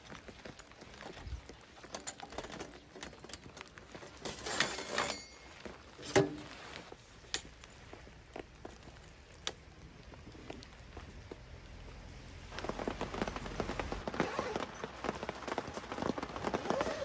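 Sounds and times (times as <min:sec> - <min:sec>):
rain pattering: 0:00.0 - 0:04.6, 0:05.3 - 0:17.0
rustling: 0:00.0 - 0:17.0.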